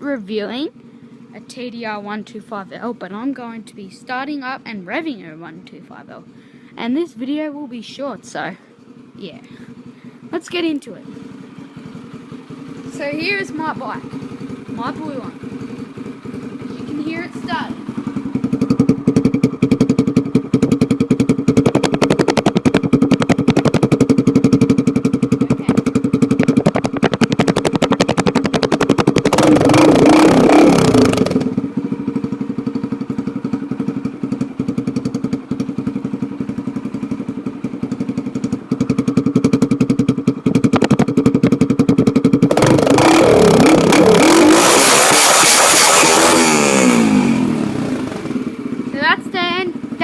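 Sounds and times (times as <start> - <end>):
dirt bike engine idling and revving: 0.0 - 50.0.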